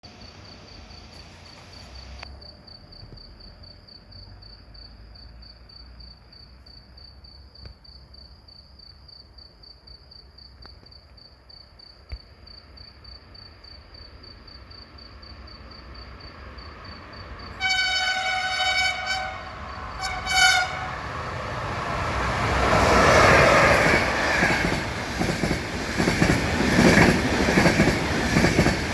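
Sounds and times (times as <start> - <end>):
train rushing past: 15.4 - 28.9
locomotive horn blasts: 17.6 - 21.1
wheels clattering over rails: 19.3 - 28.9.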